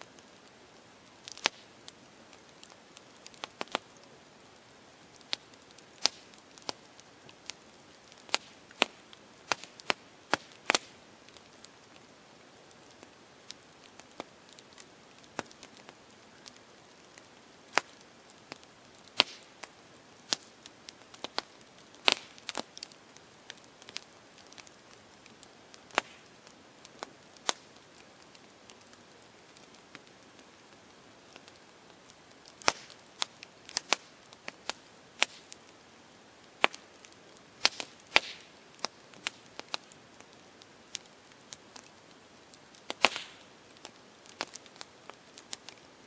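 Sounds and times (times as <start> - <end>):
campfire crackling: 0.0 - 46.0
faint steady hiss: 0.0 - 46.0.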